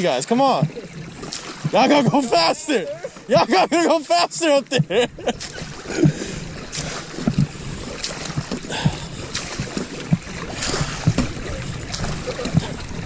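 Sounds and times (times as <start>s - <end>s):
water sloshing against boats: 0.0s - 13.0s
low knocks: 4.7s - 7.6s, 8.2s - 13.0s
wind buffeting microphone: 4.7s - 13.0s.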